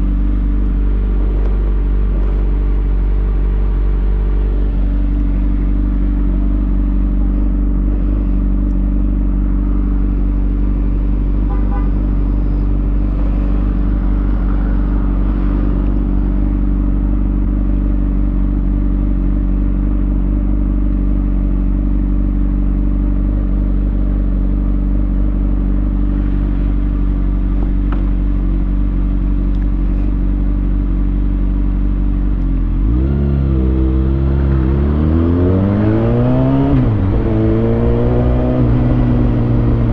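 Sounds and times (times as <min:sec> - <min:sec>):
motorcycle engine idling: 0:00.0 - 0:32.8.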